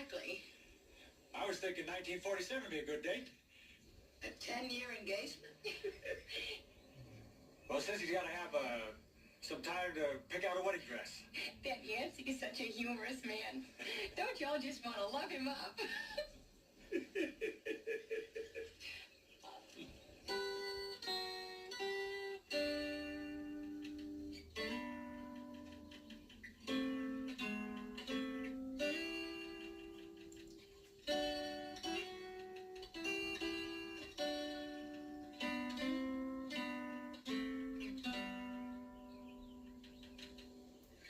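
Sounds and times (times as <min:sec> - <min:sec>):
acoustic guitar plucking: 0:20.2 - 0:40.8.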